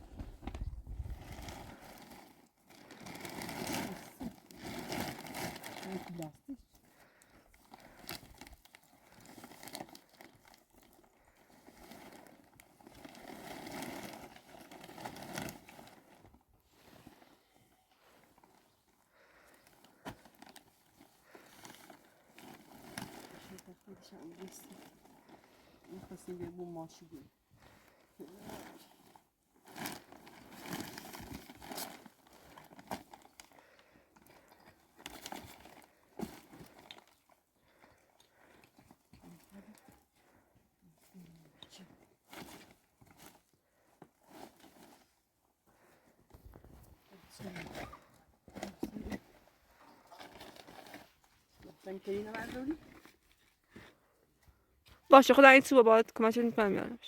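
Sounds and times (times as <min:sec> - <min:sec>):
plastic sheeting crinkling: 0:00.1 - 0:06.4, 0:07.1 - 0:27.0, 0:27.8 - 0:38.7.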